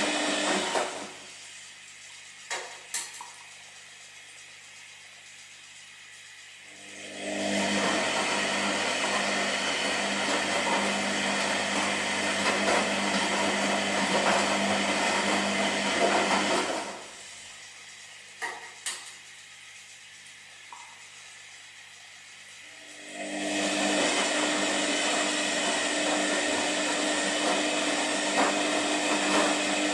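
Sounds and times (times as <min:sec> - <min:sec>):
washing machine drum churning: 0:07.2 - 0:17.1, 0:23.2 - 0:29.9.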